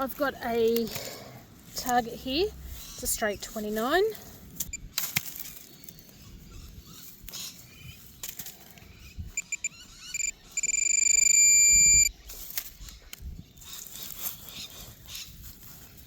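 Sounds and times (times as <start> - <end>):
metal detector beeping: 9.3 - 12.2
metal detector steady tone: 9.3 - 12.2.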